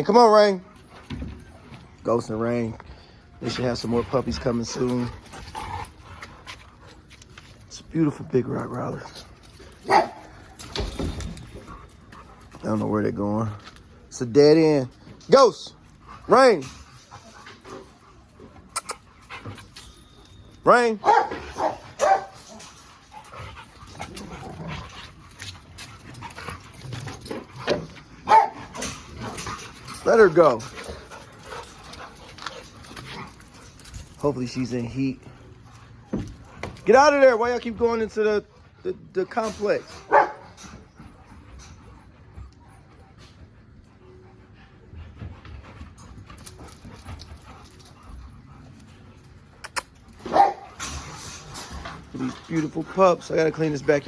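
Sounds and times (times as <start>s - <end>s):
dog barking: 9.9s - 10.3s, 21.0s - 22.4s, 28.3s - 28.6s, 40.1s - 40.4s, 50.2s - 50.7s.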